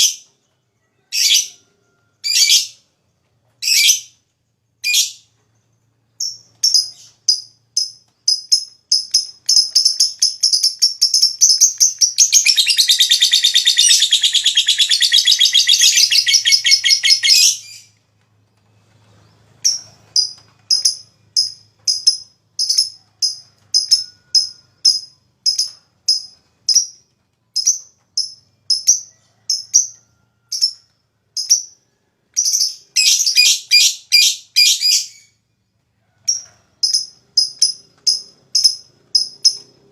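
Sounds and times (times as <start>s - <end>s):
lovebird chirping and chattering: 6.2s - 18.0s, 19.6s - 27.0s, 27.6s - 30.8s, 32.4s - 35.3s, 36.2s - 39.8s.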